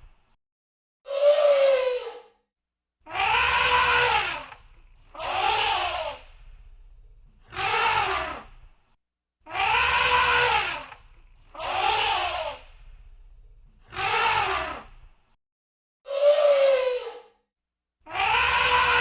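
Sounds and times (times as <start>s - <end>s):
elephant trumpeting: 3.1s - 6.3s, 7.5s - 8.5s, 9.5s - 12.7s, 13.9s - 14.9s, 18.1s - 19.0s.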